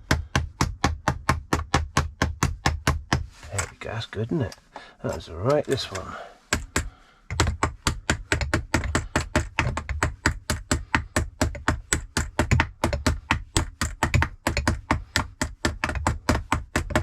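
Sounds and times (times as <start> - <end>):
small hammer tapping metal: 4.5 - 17.0.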